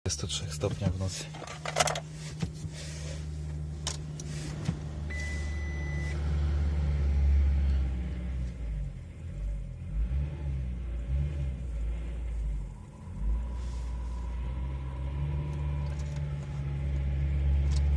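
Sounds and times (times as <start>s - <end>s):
diesel engine starting and idling: 0.1s - 17.9s
dashboard beep: 5.1s - 6.2s.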